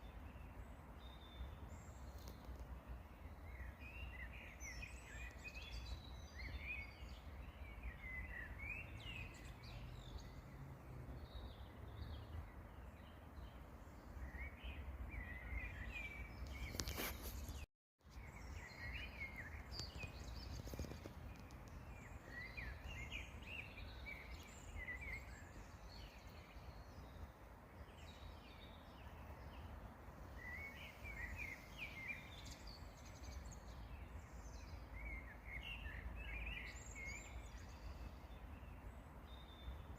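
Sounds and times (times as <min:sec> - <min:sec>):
songbirds chirping and singing: 0:00.0 - 0:39.9
brief rustle: 0:16.4 - 0:17.7, 0:19.6 - 0:21.9.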